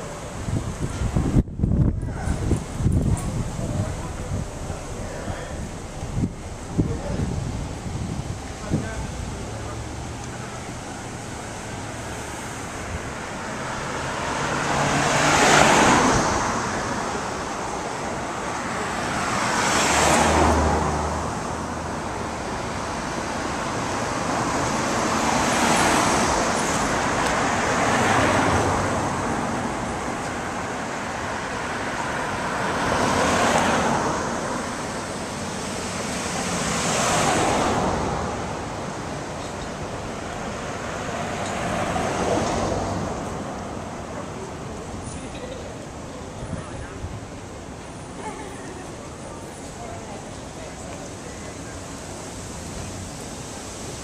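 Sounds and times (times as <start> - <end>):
cars passing: 0.0 - 54.0
steady traffic rush: 0.0 - 54.0.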